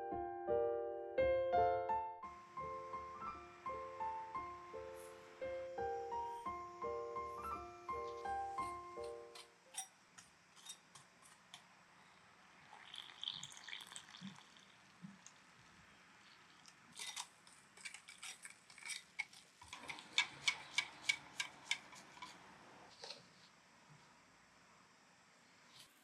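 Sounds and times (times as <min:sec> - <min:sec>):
quick stirring taps: 0:16.7 - 0:22.4
utensils tapping a container: 0:17.8 - 0:22.4.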